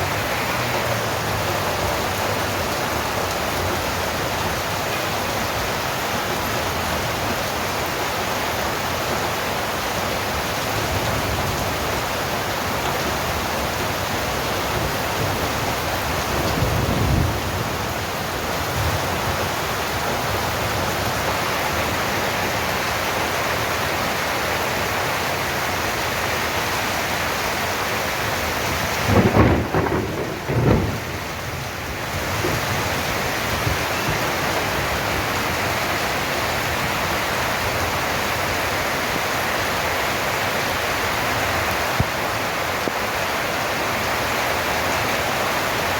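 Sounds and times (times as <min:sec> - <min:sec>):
steady rain pouring: 0:00.0 - 0:45.9
thunder rumbling: 0:14.6 - 0:20.0, 0:28.6 - 0:35.6.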